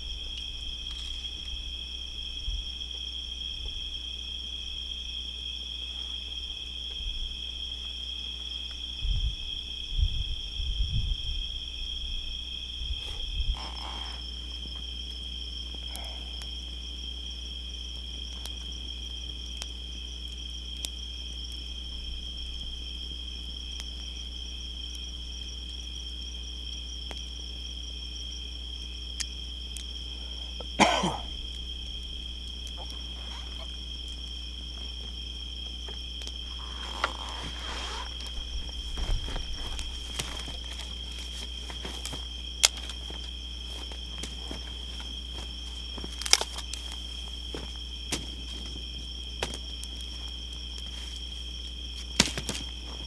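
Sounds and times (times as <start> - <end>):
crickets and insects trilling: 0.0 - 53.0
low bumps: 34.6 - 53.0.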